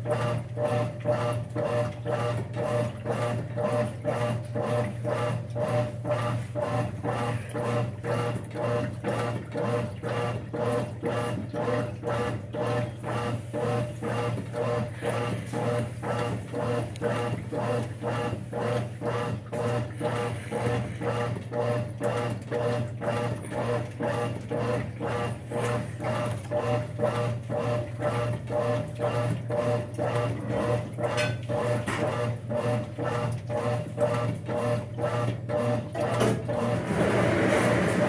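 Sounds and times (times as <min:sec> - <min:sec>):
motor hum: 0:00.0 - 0:38.0
washing machine agitator swishing: 0:00.0 - 0:38.0.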